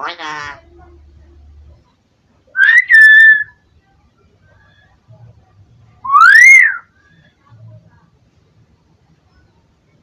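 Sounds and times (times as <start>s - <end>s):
myna bird whistled call: 2.6s - 3.6s, 6.1s - 6.9s.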